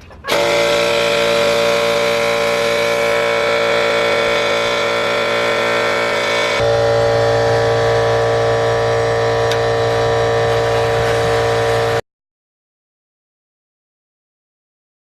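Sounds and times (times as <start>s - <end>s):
air compressor motor drone: 0.0s - 12.0s.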